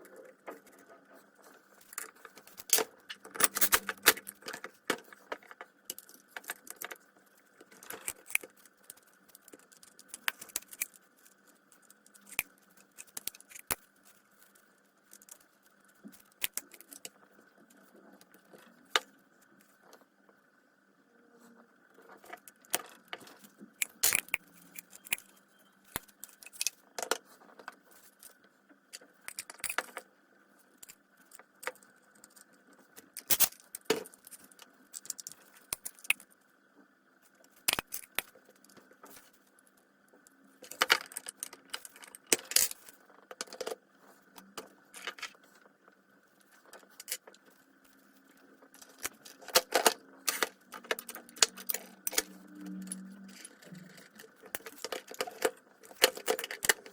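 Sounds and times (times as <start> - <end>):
faint steady hum: 0.0 - 56.9
metal tools clinking: 3.3 - 4.0.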